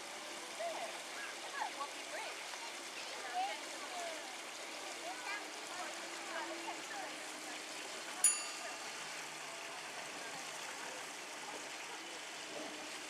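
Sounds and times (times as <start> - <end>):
rushing water-like noise: 0.0 - 13.0
sharp metallic ping: 8.3 - 8.9.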